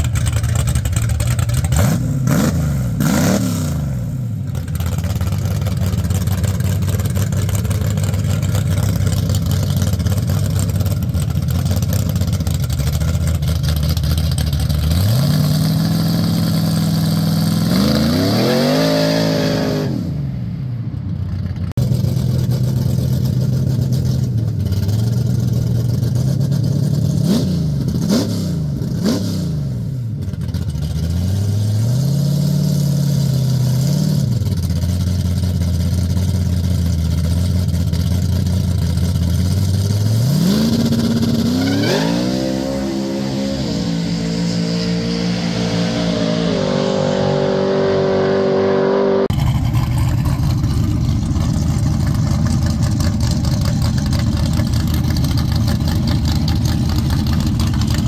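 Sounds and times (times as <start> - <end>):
car engine idling: 0.0 - 3.0, 4.0 - 17.8, 20.5 - 27.2, 30.0 - 31.3, 34.3 - 41.5, 49.3 - 58.0
car engine revving: 0.0 - 58.0.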